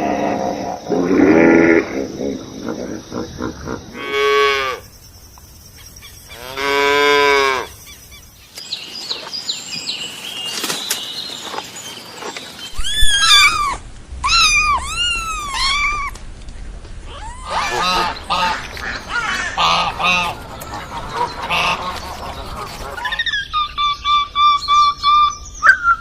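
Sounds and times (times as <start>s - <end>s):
faint high chirping: 2.1s - 16.2s
short arching high calls: 12.7s - 16.2s, 17.0s - 25.1s.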